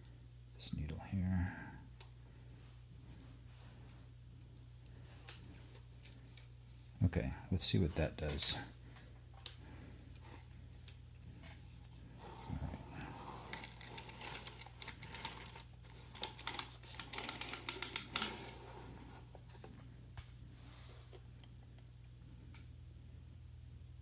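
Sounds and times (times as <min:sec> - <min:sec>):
knitting machine needles clattering: 0:13.2 - 0:18.6.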